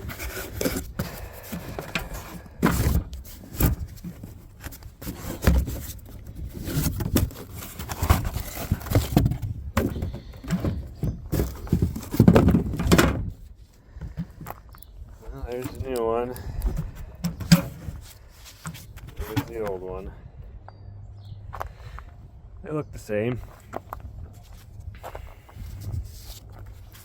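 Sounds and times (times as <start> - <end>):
tools and parts clunking: 0.0 - 19.8.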